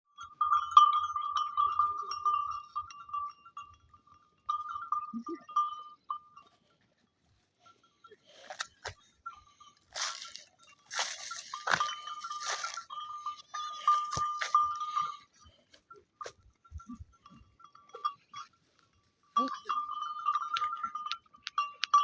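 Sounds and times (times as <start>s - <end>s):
scuffling noises: 9.9s - 17.0s.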